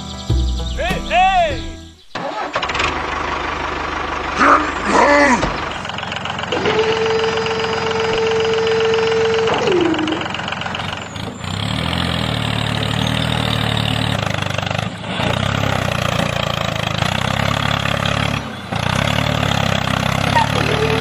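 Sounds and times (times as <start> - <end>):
tractor engine running: 0.0 - 21.0
falling tone: 4.3 - 10.4.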